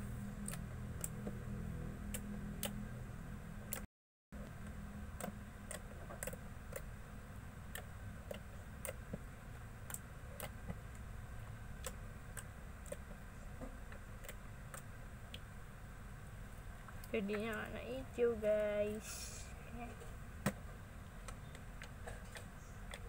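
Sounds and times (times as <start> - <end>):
slime being kneaded by hand: 7.6 - 11.1, 11.7 - 15.5.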